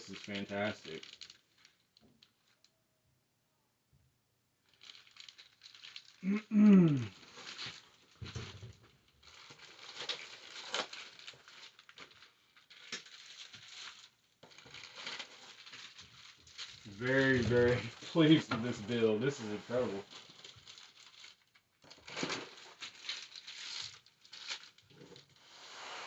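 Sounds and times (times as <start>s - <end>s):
packaging rustling and crinkling: 0.0s - 2.6s, 4.6s - 6.2s, 6.8s - 26.0s
person murmuring exclamation: 6.2s - 7.1s.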